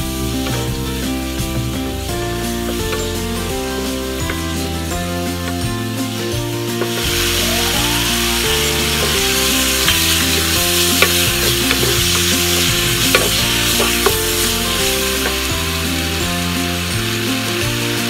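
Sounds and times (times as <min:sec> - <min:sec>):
background music with held notes: 0:00.0 - 0:18.0
onions sizzling in sauce: 0:00.0 - 0:18.0
wooden spatula knocking on pan: 0:08.0 - 0:15.5.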